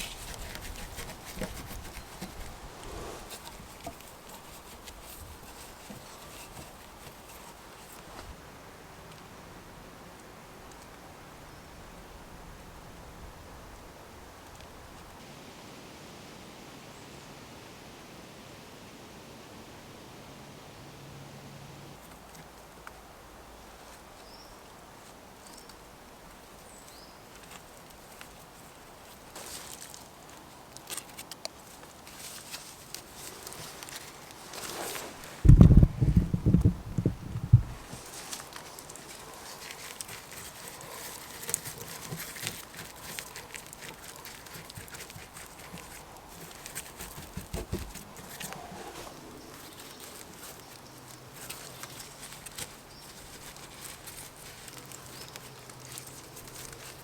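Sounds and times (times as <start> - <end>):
low outdoor background: 0.0 - 57.0
light clicks and crunches: 26.9 - 57.0
brief rustle: 29.4 - 57.0.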